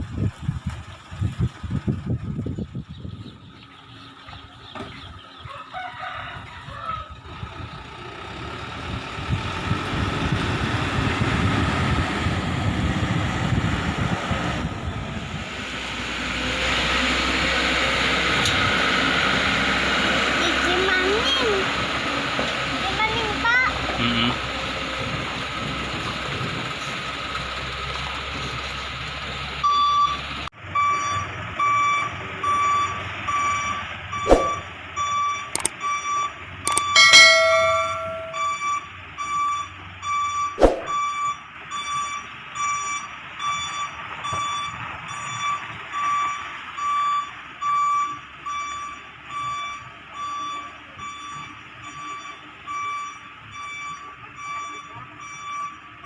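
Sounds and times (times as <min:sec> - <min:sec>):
truck reversing alarm beeping: 0:29.6 - 0:56.0
sharp clicks and knocks: 0:35.5 - 0:35.8, 0:36.7 - 0:37.0.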